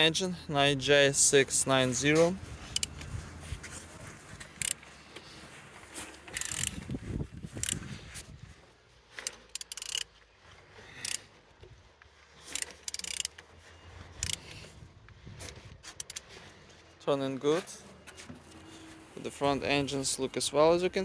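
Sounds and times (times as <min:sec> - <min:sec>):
ratchet wrench clicks: 0:02.7 - 0:03.0, 0:04.6 - 0:04.8, 0:06.3 - 0:06.8, 0:07.5 - 0:07.8, 0:09.2 - 0:10.1, 0:11.0 - 0:11.2, 0:12.5 - 0:13.4, 0:14.2 - 0:14.4, 0:15.9 - 0:16.2.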